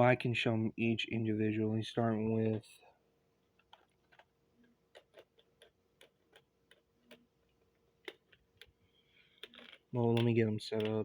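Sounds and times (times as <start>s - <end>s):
plastic model train cars clicking: 3.6s - 11.0s.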